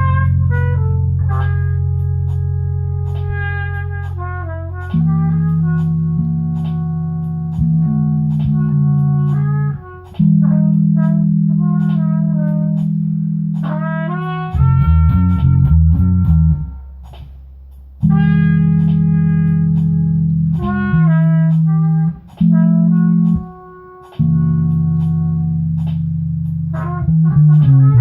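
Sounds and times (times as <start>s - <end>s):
low bass notes: 0.0s - 28.0s
guitar melodic phrases: 4.2s - 17.3s.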